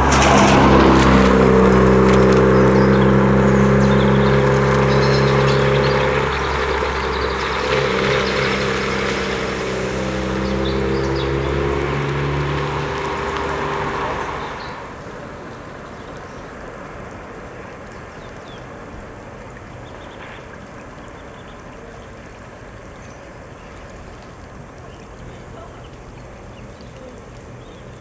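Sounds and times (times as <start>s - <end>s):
vehicle engine: 0.0s - 17.8s
floodwater rushing: 0.0s - 28.0s.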